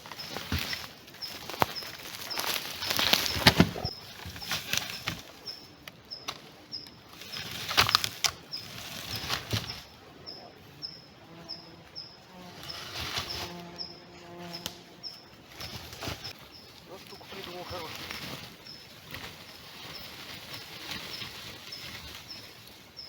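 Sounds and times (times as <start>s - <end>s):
rustling and crunching: 0.0s - 23.0s
small bird calling: 0.0s - 23.0s.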